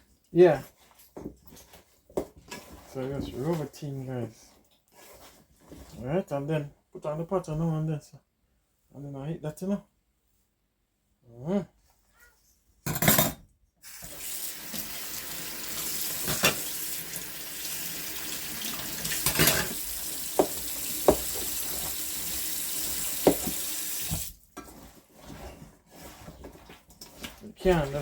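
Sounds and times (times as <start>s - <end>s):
tap water running into sink: 13.8s - 24.4s.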